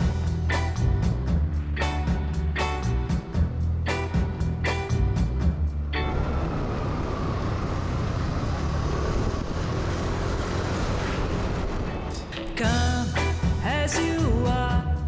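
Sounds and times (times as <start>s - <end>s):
rushing vehicle noise: 0.0s - 13.7s.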